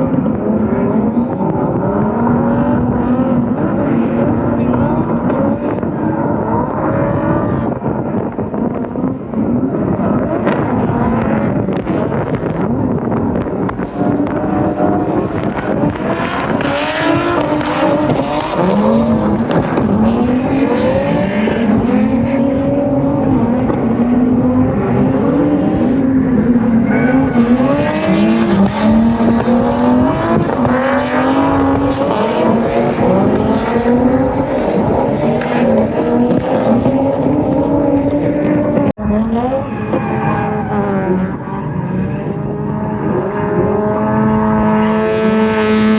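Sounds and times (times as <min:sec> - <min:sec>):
car engine revving hard: 0:00.0 - 0:45.9
tyres screeching: 0:26.4 - 0:29.2.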